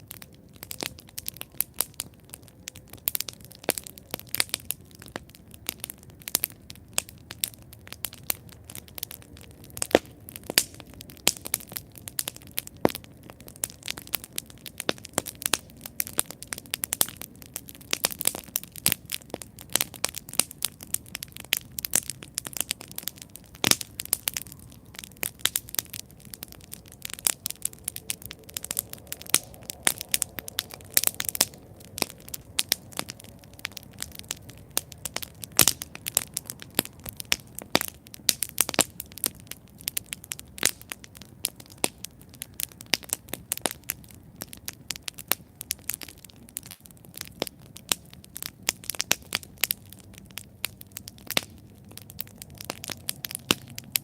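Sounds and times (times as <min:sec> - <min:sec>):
campfire crackling and popping: 0:00.0 - 0:54.0
soft steady fire hiss: 0:00.0 - 0:54.0.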